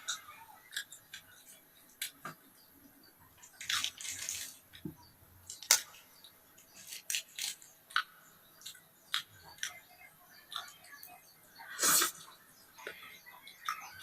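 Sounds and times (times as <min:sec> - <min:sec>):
slurp: 0:11.8 - 0:12.2.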